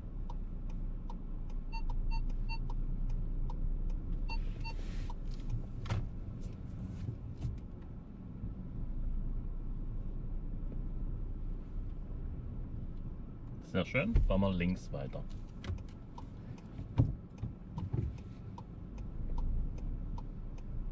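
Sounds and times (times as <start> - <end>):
car engine rumbling at low speed: 0.0 - 20.9
parking sensor beeps: 1.6 - 2.8, 4.2 - 5.0.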